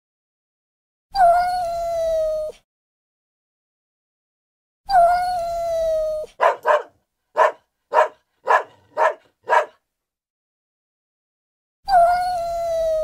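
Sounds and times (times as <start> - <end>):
dog barking: 6.4 - 9.8.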